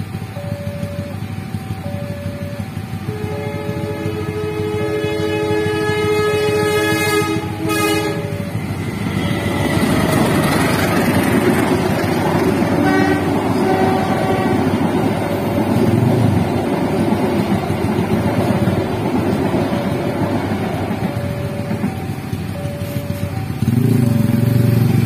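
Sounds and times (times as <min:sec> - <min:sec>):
rail clatter: 0:00.0 - 0:25.0
train coaches rumbling past: 0:00.0 - 0:25.0
train horn: 0:03.1 - 0:09.6, 0:12.6 - 0:16.0.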